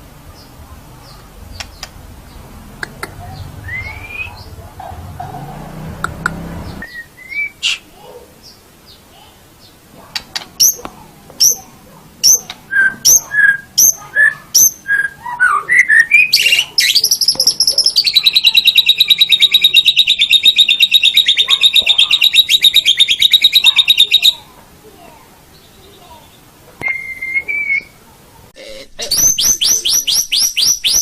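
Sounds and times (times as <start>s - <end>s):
songbird whistling and trilling: 3.6s - 4.5s, 6.8s - 7.8s, 12.2s - 24.4s, 26.8s - 28.0s, 29.2s - 31.0s.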